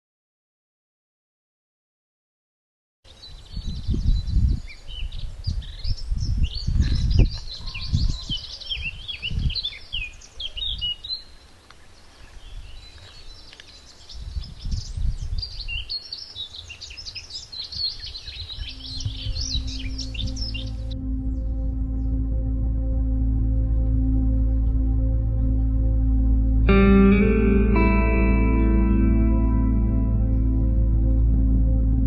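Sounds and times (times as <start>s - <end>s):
songbirds chirping and whistling: 3.1s - 22.4s
wind buffeting microphone: 3.2s - 11.3s, 12.2s - 26.2s.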